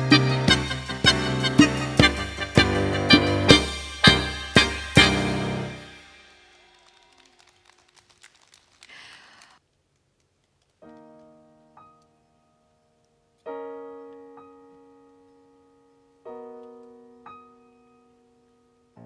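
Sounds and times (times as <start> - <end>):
synthesizer piano chords: 0.0 - 6.4, 10.8 - 19.0.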